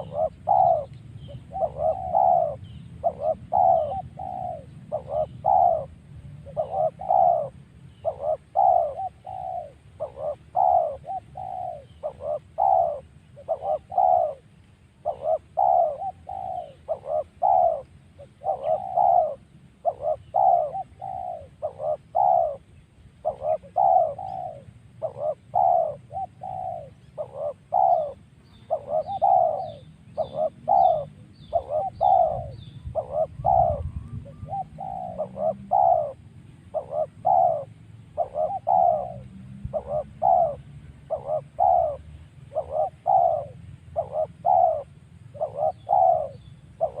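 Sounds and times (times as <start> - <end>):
dove cooing: 0.0 - 47.0
small bird high chirps: 15.0 - 44.8.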